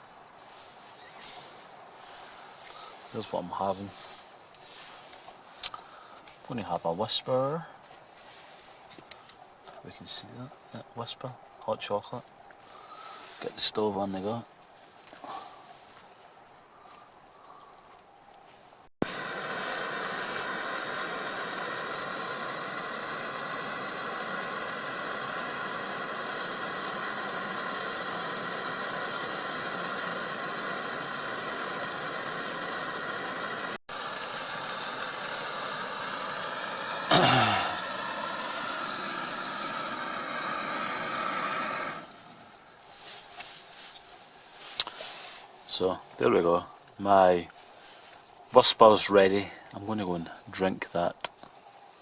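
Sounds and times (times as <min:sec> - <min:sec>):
gas stove burner hissing: 0:19.0 - 0:43.5.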